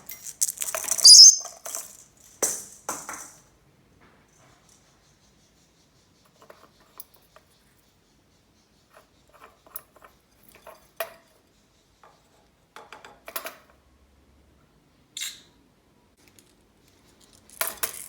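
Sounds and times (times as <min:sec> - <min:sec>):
toy balls clattering on hard surface: 0:00.0 - 0:03.5, 0:17.2 - 0:18.0.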